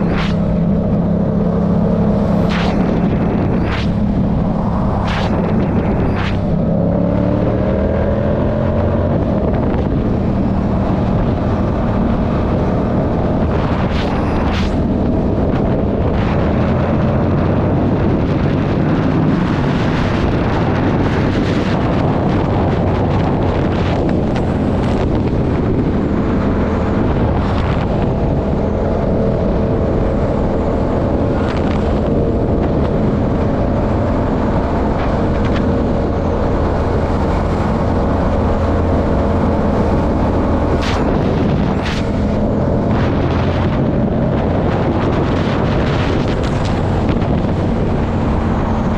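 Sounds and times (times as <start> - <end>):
wind noise on microphone: 0.0 - 48.9.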